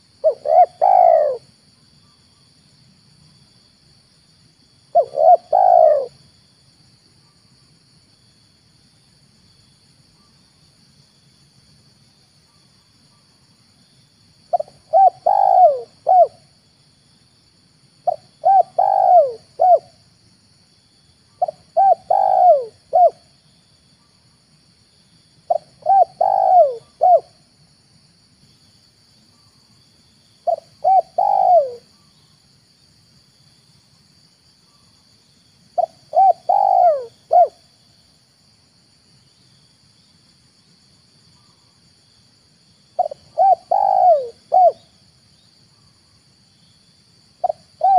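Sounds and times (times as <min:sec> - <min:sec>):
dove cooing: 0:00.0 - 0:01.5, 0:04.9 - 0:06.2, 0:14.5 - 0:16.5, 0:18.0 - 0:20.0, 0:21.4 - 0:23.3, 0:25.5 - 0:27.4, 0:30.4 - 0:31.9, 0:35.8 - 0:37.6, 0:43.0 - 0:44.9, 0:47.4 - 0:47.9.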